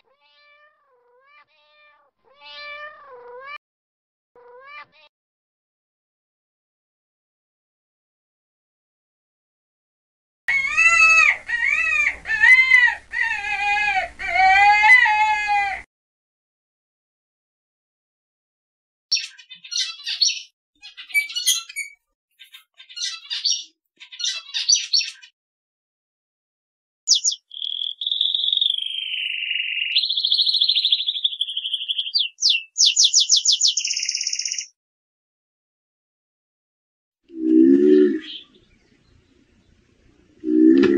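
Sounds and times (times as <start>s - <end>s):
high-pitched drawn-out cries: 10.5s - 15.8s, 21.0s - 22.0s
canary singing trills: 19.1s - 25.3s, 27.1s - 34.7s.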